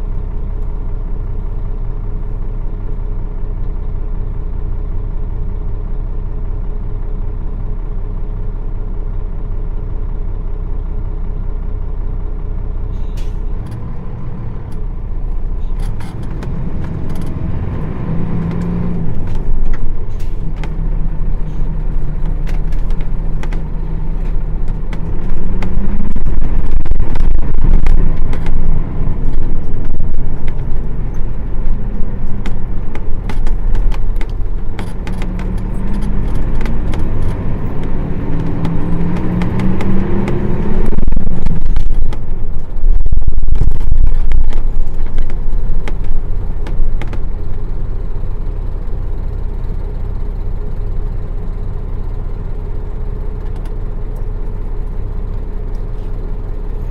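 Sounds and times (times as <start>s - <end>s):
bus diesel engine: 0.0s - 56.9s
bus body clicks and rattles: 12.9s - 49.4s, 53.2s - 56.9s.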